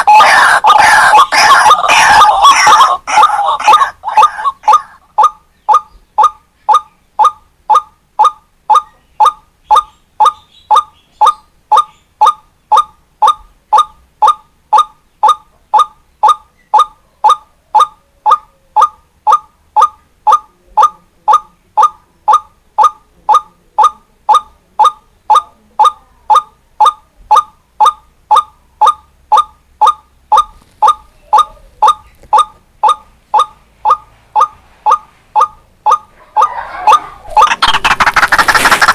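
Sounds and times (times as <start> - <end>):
waterhen calling: 0.0 - 7.9, 35.9 - 38.9.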